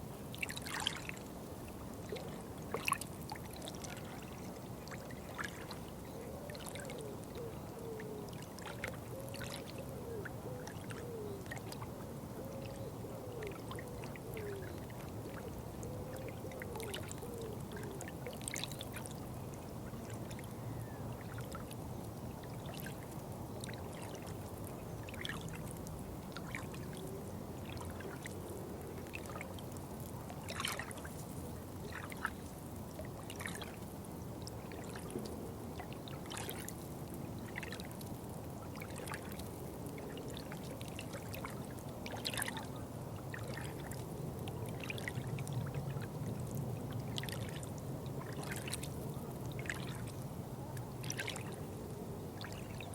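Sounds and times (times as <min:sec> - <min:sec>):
water trickling and pouring: 0:00.3 - 0:01.2, 0:29.0 - 0:42.7
small drips and splashes: 0:00.3 - 0:01.3, 0:01.9 - 0:05.9, 0:13.4 - 0:20.5, 0:21.2 - 0:50.3, 0:51.0 - 0:51.6, 0:52.4 - 0:52.9.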